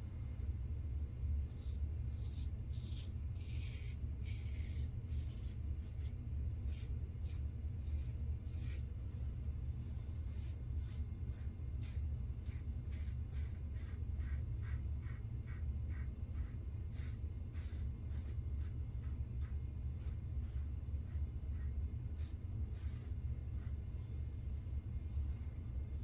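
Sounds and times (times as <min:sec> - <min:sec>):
steady low hum: 0:00.0 - 0:26.0
razor scraping stubble: 0:10.3 - 0:23.8.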